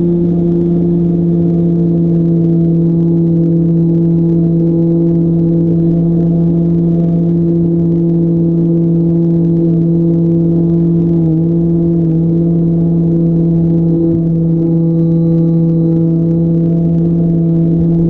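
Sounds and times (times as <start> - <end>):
electric motor and propeller hum: 0.0 - 18.0.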